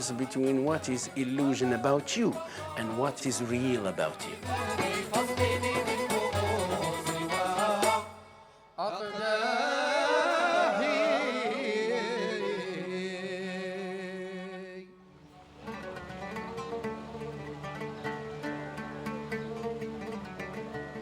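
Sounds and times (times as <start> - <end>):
plucked-string music: 0.0 - 8.2, 15.4 - 21.0
person singing ornamented phrase: 0.0 - 14.9.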